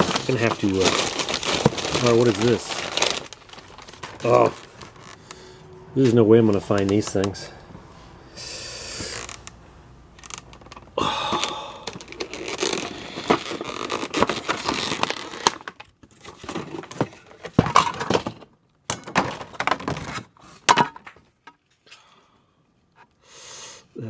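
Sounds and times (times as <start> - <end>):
packaging crinkling: 0.0 - 5.6, 10.2 - 18.2.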